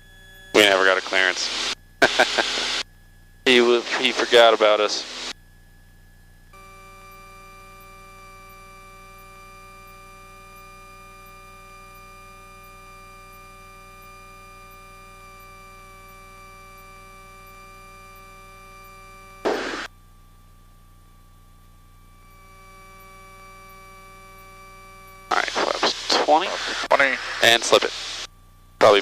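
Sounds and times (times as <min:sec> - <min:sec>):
steady electronic tone: 0:00.3 - 0:02.8, 0:06.6 - 0:19.9
static burst: 0:00.6 - 0:02.8, 0:03.5 - 0:05.3, 0:19.4 - 0:19.9, 0:25.3 - 0:29.0.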